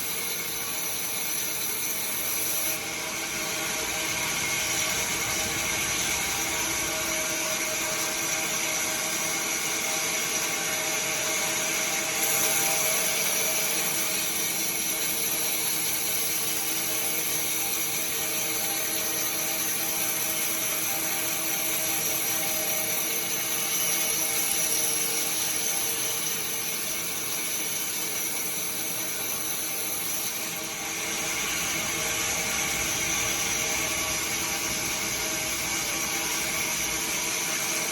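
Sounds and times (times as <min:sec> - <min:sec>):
sawmill saw whining: 0:00.0 - 0:37.9.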